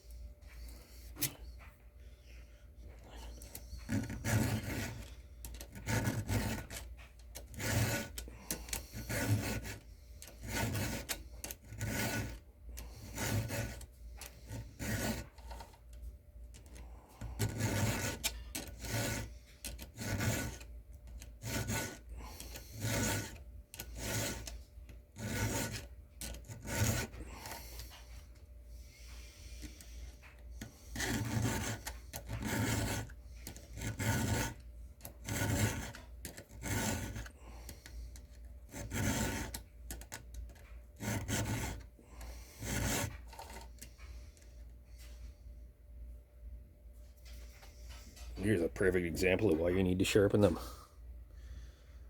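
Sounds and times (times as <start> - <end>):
file rasping on chainsaw chain: 3.3 - 15.7, 16.6 - 28.0, 29.6 - 40.3, 41.0 - 43.7.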